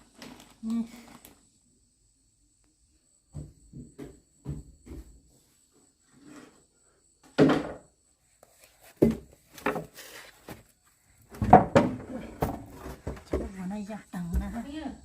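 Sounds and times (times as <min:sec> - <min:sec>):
wooden pieces knocking and thudding: 0:07.2 - 0:07.9, 0:08.9 - 0:10.6, 0:11.3 - 0:13.7.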